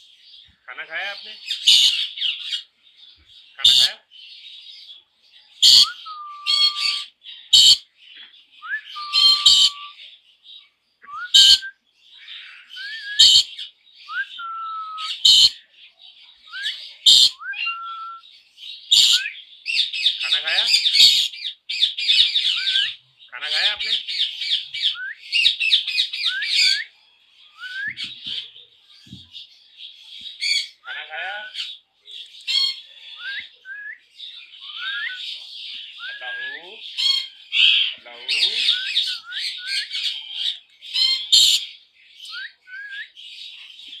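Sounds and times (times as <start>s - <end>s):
parrots chattering: 0.6s - 2.7s, 3.5s - 4.1s, 5.6s - 7.9s, 9.0s - 10.0s, 11.2s - 13.7s, 14.9s - 15.7s, 17.0s - 17.9s, 18.9s - 26.8s, 30.3s - 33.2s, 34.4s - 41.7s.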